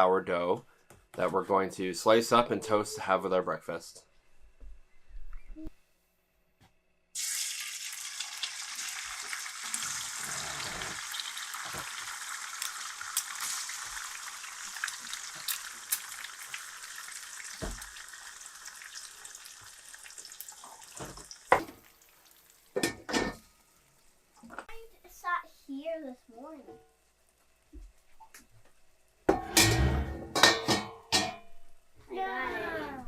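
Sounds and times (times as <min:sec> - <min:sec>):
food sizzling in frying pan: 0:07.2 - 0:24.3.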